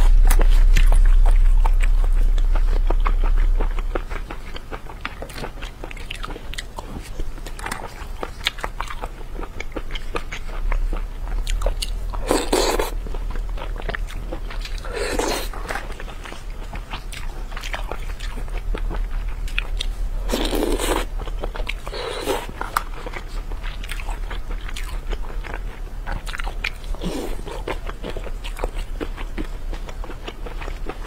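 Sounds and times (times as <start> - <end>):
chewing with wet mouth clicks: 0.1 - 31.0.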